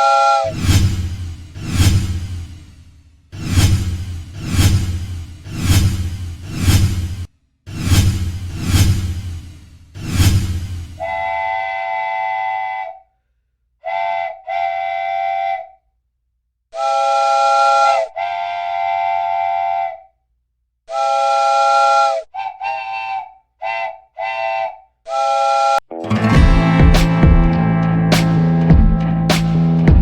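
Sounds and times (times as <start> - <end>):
locomotive air horn blasts: 11.0 - 13.0, 13.8 - 15.7, 16.8 - 20.0, 20.9 - 25.8.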